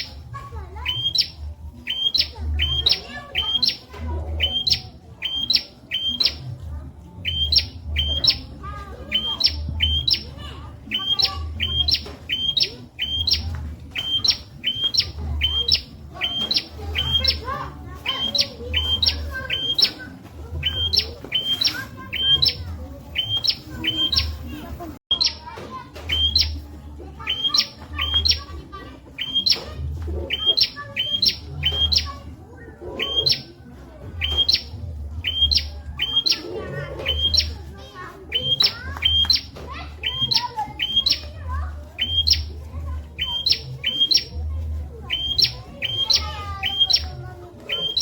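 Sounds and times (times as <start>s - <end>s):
bird chirping: 0.0s - 28.5s, 29.2s - 32.2s, 32.9s - 33.5s, 34.2s - 37.7s, 38.3s - 44.4s, 45.1s - 48.0s
prinia calling whistle: 0.8s - 6.4s, 7.2s - 8.5s, 9.1s - 10.3s, 10.9s - 20.0s, 20.6s - 24.4s, 26.1s - 26.6s, 29.2s - 29.6s, 30.2s - 32.1s, 33.0s - 33.5s, 34.2s - 37.6s, 38.3s - 44.3s, 45.0s - 48.0s.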